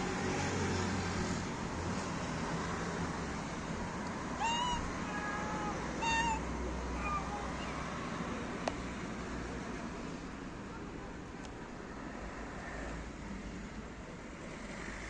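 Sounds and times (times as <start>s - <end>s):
cat meowing: 4.4s - 7.8s.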